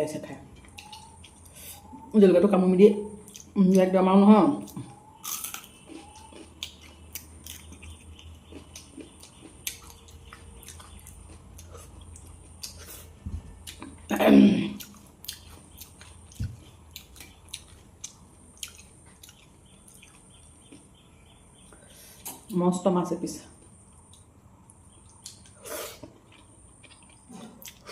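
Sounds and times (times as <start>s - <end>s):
person chewing and eating: 4.7s - 21.0s, 23.6s - 27.9s.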